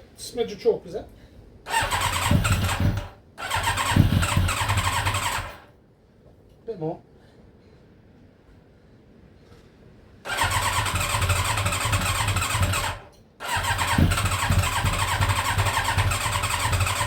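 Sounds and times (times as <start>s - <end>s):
motorcycle electric starter cranking: 1.7s - 5.7s, 10.3s - 17.0s.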